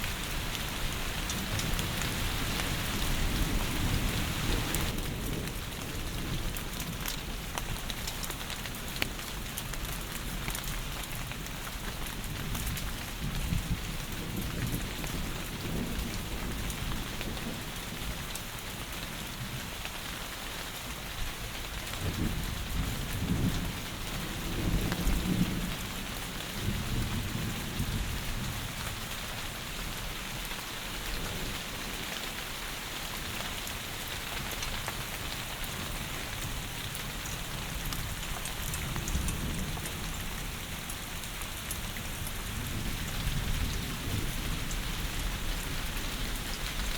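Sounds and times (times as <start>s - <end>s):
heavy rain hissing: 0.0s - 6.5s.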